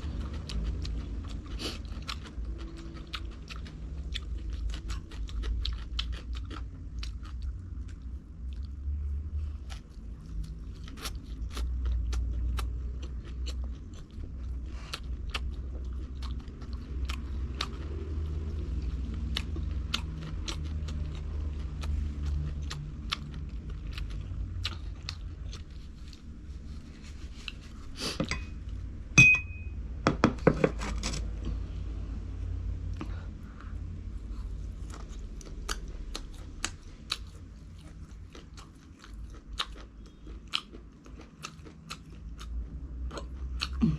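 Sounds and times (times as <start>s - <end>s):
chewing crunchy food: 0.0s - 28.8s, 32.9s - 43.9s
short ringing clink: 29.2s - 29.8s.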